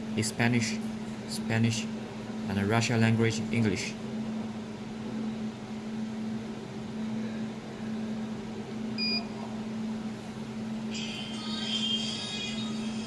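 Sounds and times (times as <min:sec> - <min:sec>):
short electronic beep: 0:09.0 - 0:09.2.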